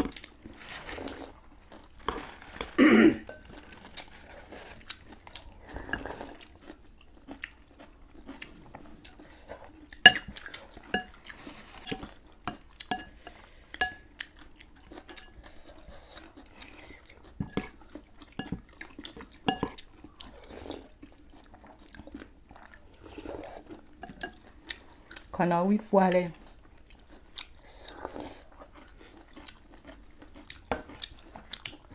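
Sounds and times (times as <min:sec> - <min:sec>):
chewing: 0:00.0 - 0:25.4, 0:26.3 - 0:31.9
utensils clinking against bowls: 0:03.2 - 0:03.8, 0:10.1 - 0:11.2, 0:11.8 - 0:14.1, 0:18.4 - 0:18.6, 0:19.5 - 0:19.8, 0:24.0 - 0:24.4.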